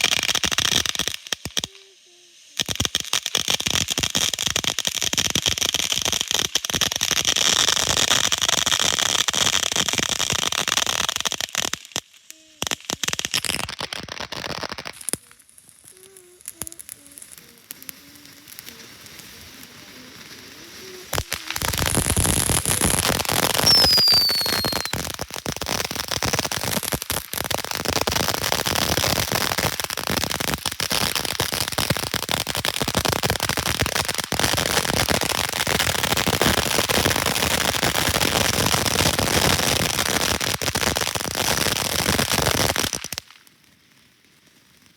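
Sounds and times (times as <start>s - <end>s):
fireworks crackling and popping: 0.0s - 44.9s
firework falling whistle: 12.3s - 25.9s.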